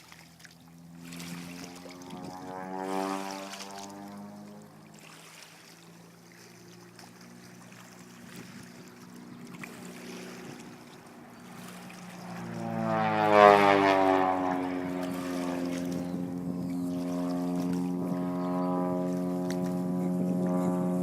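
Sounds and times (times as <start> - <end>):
propeller aircraft flying past: 0.0 - 21.0.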